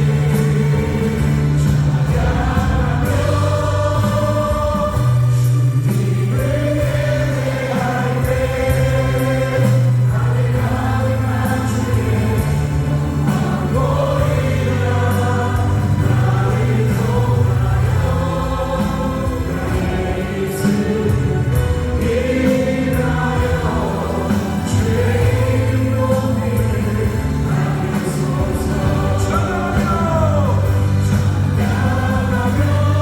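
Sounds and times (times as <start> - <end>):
acoustic guitar: 0.0 - 33.0
drums: 0.0 - 33.0
keyboards: 0.0 - 33.0
people singing: 0.0 - 33.0.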